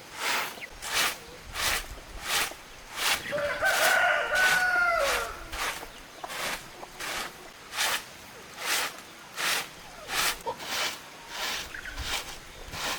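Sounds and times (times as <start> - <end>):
rooster crowing: 3.3 - 5.5.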